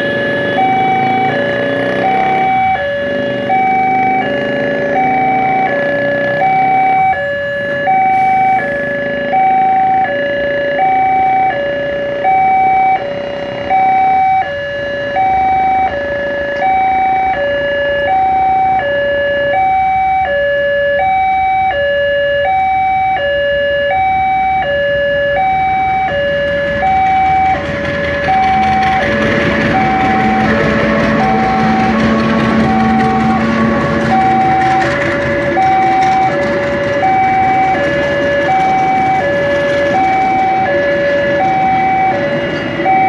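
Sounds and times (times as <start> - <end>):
level crossing alarm two-tone: 0.0 - 43.0
broad rumbling noise: 25.1 - 43.0.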